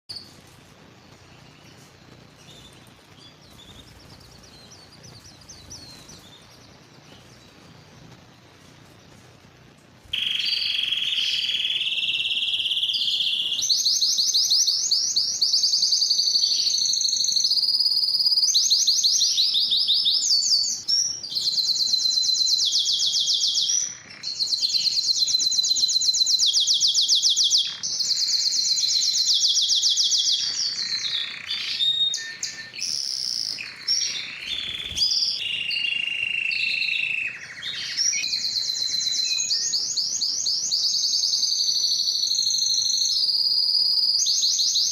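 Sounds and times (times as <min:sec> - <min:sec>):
canary singing trills: 0:00.1 - 0:44.9.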